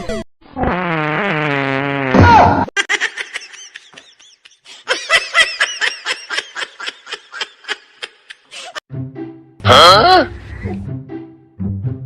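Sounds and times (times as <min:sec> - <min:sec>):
high-pitched laughter: 0:02.8 - 0:08.8.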